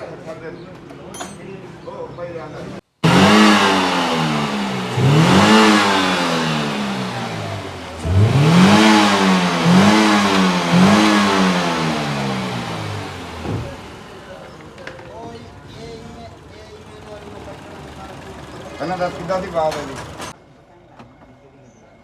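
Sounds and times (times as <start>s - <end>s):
car engine revving: 3.0s - 20.4s.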